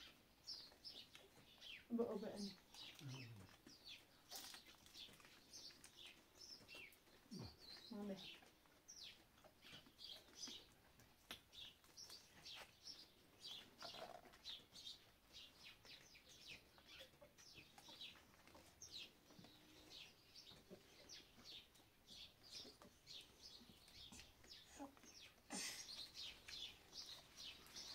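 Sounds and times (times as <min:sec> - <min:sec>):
small birds chirping: 0:00.0 - 0:27.9.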